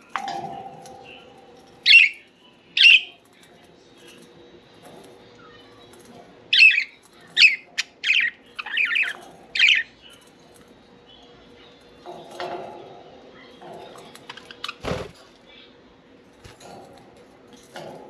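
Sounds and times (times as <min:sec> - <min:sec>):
budgerigars chirping and squawking: 0:00.2 - 0:03.2, 0:06.5 - 0:10.2, 0:13.6 - 0:15.1.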